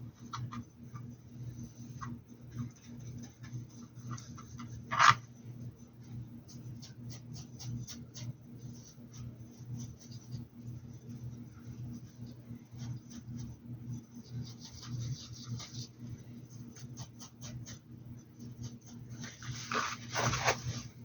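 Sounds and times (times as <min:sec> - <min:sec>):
steady low hum: 0:00.0 - 0:21.0
paintbrush scratchy strokes: 0:06.4 - 0:17.8.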